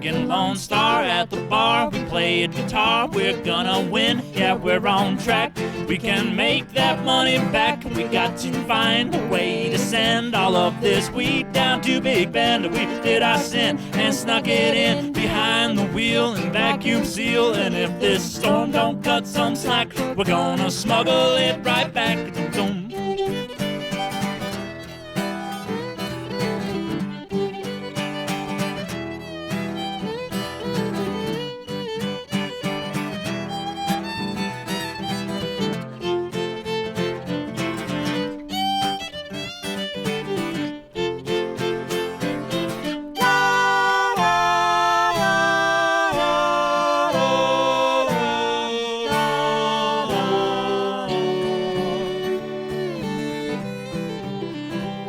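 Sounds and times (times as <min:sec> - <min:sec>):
fiddle melody: 0:00.0 - 0:55.0
guitar strumming: 0:00.0 - 0:55.0.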